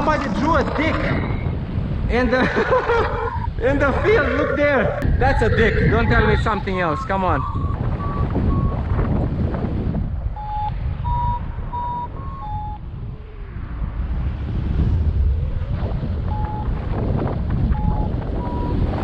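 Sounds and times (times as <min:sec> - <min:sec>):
wind buffeting microphone: 0:00.0 - 0:19.0
variometer beeping: 0:06.1 - 0:09.0, 0:10.3 - 0:12.8, 0:16.3 - 0:16.7, 0:17.7 - 0:19.0.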